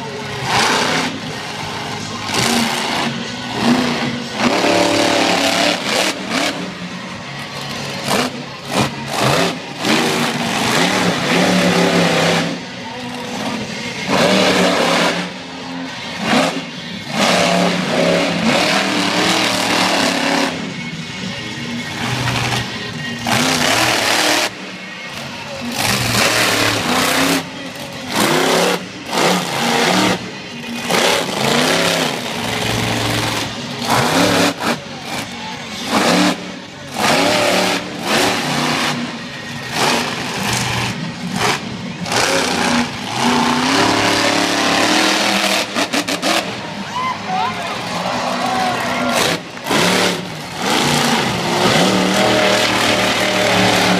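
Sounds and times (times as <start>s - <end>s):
monster truck engines revving: 0.0s - 53.9s.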